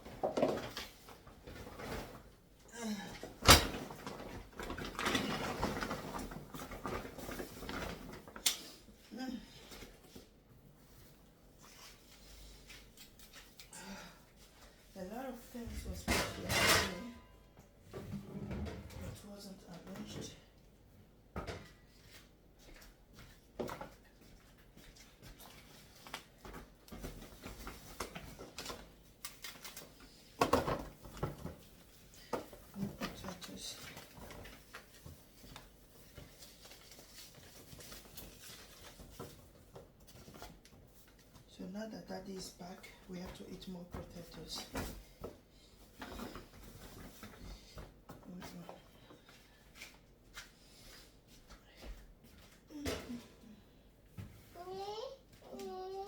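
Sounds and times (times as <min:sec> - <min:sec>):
kitchen items rustling and clattering: 0:00.0 - 0:56.0
kitchen items being handled: 0:14.4 - 0:20.4.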